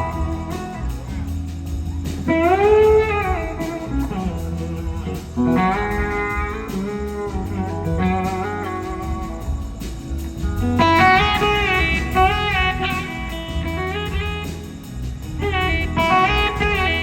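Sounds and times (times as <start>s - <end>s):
band backing: 0.0s - 17.0s
electric slide guitar solo: 2.3s - 9.4s, 10.6s - 14.6s, 15.4s - 17.0s.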